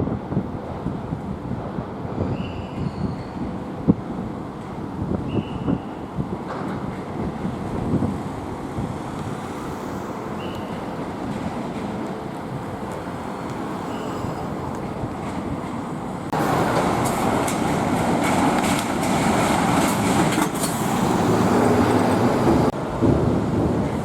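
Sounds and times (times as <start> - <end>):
heavy machinery rumbling: 10.2 - 24.0
rattling clatter: 16.6 - 21.0.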